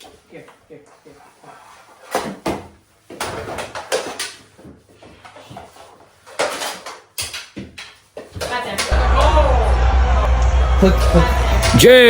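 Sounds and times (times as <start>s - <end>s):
plastic hockey sticks clacking: 2.0s - 9.0s.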